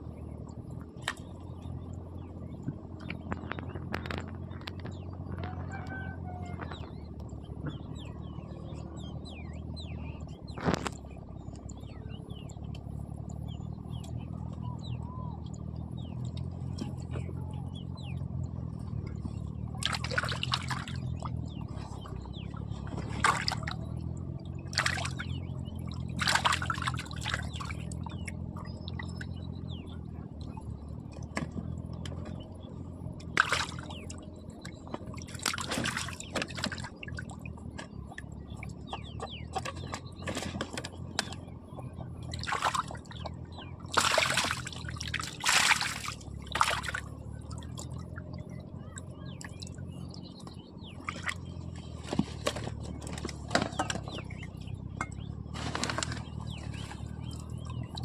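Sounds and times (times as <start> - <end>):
steady low hum: 0.0 - 58.0
water splashing and sloshing: 18.7 - 29.5, 33.1 - 58.0.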